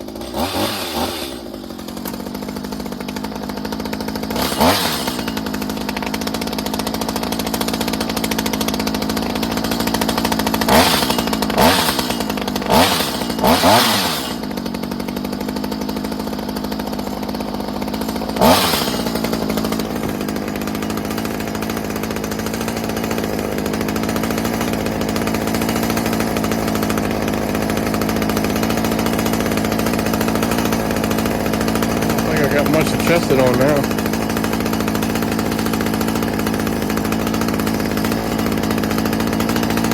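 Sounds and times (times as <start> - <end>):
hedge trimmer engine idling: 0.0 - 39.9
engine throttle blips: 30.4 - 34.2.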